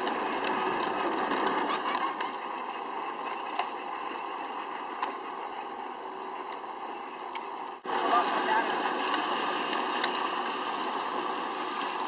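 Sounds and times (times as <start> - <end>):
plastic wheels rolling: 0.0 - 12.0.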